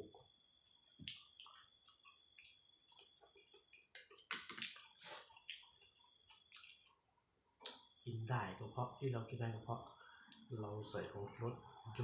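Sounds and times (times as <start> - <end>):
person chewing with wet smacks: 1.0 - 6.9.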